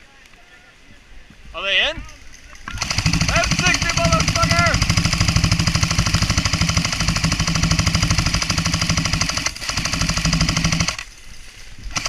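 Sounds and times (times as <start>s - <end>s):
airsoft gun full-auto clatter: 2.6s - 11.2s.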